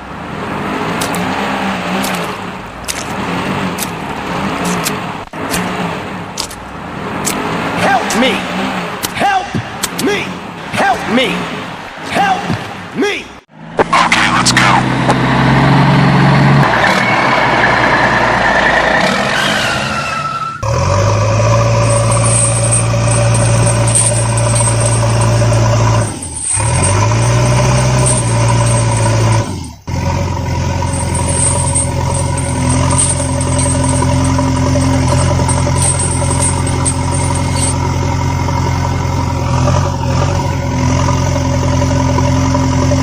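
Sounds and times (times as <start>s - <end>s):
vehicle engine running: 13.5s - 18.9s, 20.6s - 43.0s.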